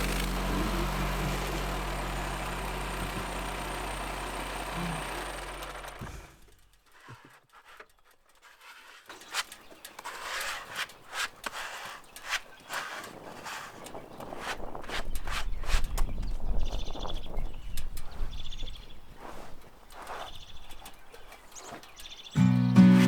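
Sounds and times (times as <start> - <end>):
sawmill gasoline engine running: 0.0 - 6.6, 22.4 - 23.0.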